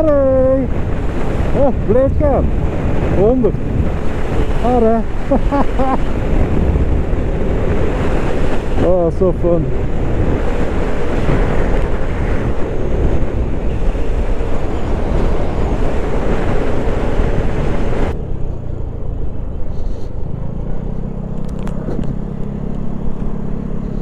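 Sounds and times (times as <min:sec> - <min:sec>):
wind rush on microphone: 0:00.0 - 0:24.0
scooter engine running: 0:09.7 - 0:24.0.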